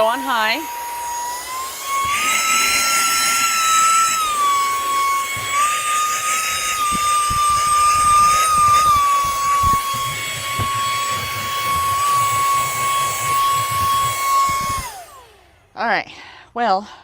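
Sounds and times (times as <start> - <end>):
handheld vacuum motor whine: 0.0 - 15.9.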